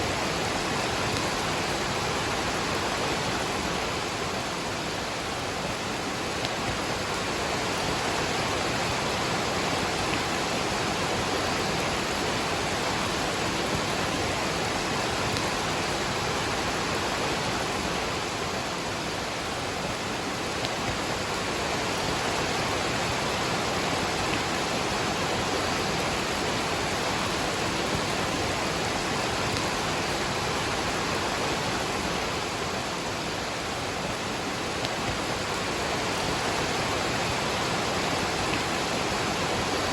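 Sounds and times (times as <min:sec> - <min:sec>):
rain: 0:00.0 - 0:39.9
waterfall rushing: 0:00.0 - 0:39.9.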